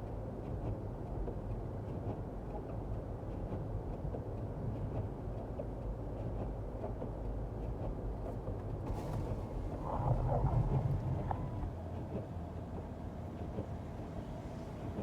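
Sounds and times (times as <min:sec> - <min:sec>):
car driving on wet road: 0:04.5 - 0:15.0.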